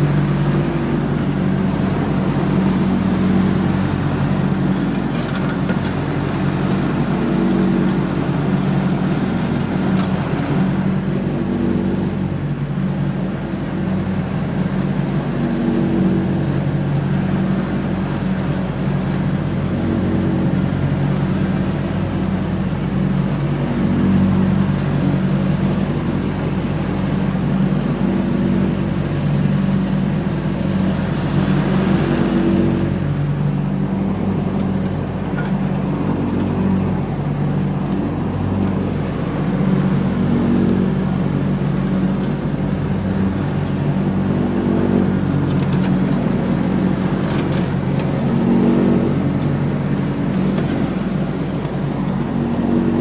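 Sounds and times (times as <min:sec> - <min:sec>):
lawn tractor engine running: 0:21.6 - 0:53.0.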